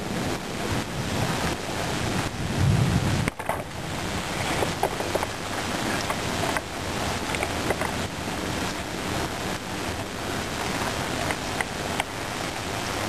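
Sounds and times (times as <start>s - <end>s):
low thunder rumble: 0.0s - 9.1s
heavy rain: 0.0s - 13.0s
wind noise on microphone: 0.0s - 13.0s.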